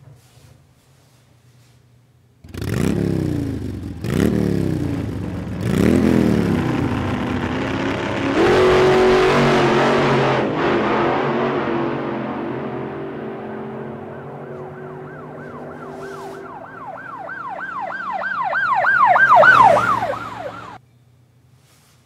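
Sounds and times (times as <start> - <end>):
vehicle engine hum: 2.4 - 20.8
emergency siren yelping: 13.4 - 20.8.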